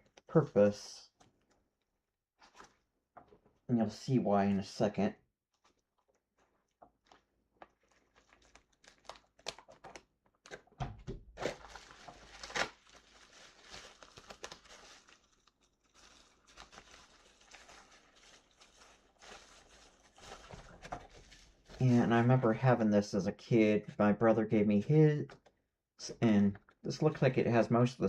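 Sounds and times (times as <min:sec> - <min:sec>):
packaging crinkling: 0:05.6 - 0:10.7, 0:11.4 - 0:21.8.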